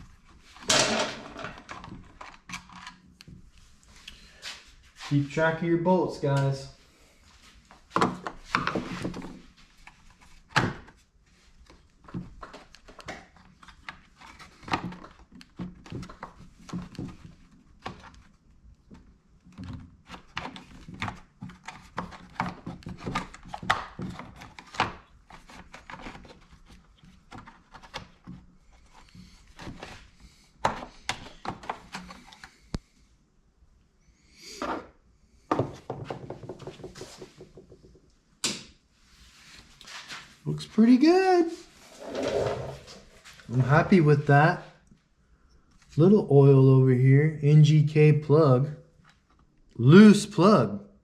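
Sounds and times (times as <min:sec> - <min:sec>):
tools and parts knocking and clattering: 0:00.6 - 0:03.0, 0:35.5 - 0:38.6.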